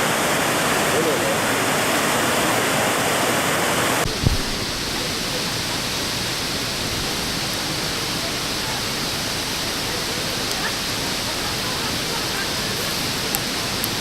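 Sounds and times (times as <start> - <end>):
waterfall roaring: 0.0 - 14.0
low thump: 4.0 - 5.4.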